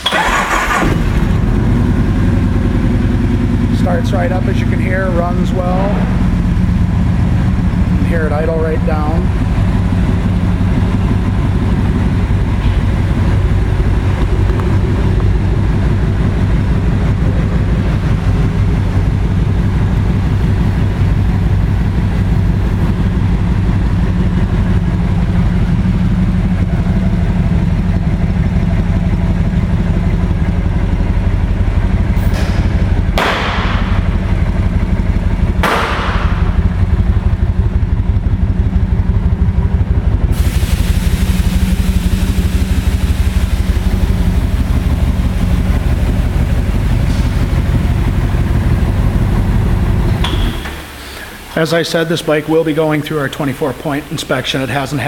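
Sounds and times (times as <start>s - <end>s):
motorcycle engine idling: 0.0s - 51.0s
hissing bursts: 40.3s - 45.4s.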